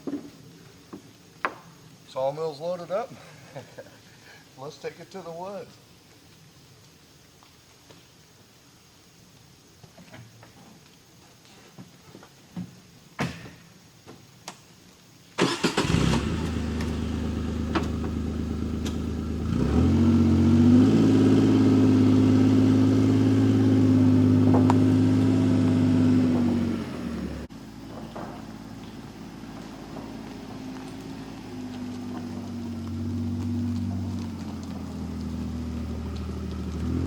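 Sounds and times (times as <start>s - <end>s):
utility vehicle engine running: 15.4s - 27.5s.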